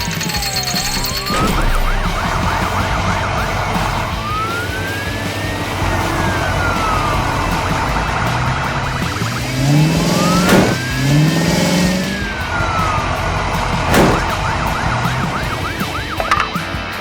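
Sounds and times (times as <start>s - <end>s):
whistling glide: 0.0s - 16.7s
cartoon engine revving: 0.8s - 12.9s.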